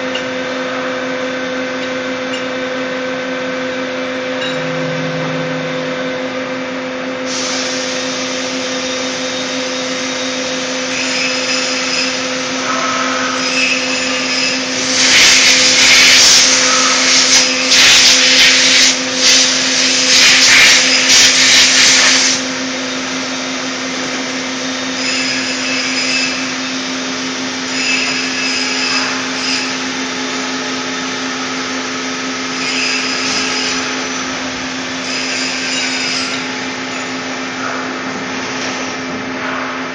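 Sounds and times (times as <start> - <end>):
lathe humming: 2.9 - 10.9
loud fluctuating hiss: 14.0 - 22.4.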